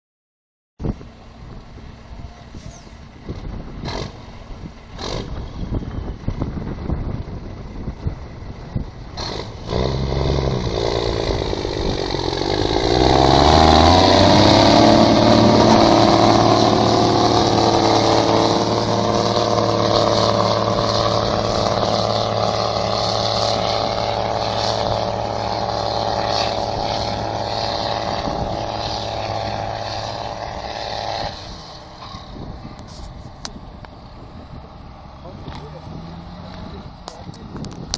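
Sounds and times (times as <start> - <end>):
tractor engine running under load: 0.8 - 37.9.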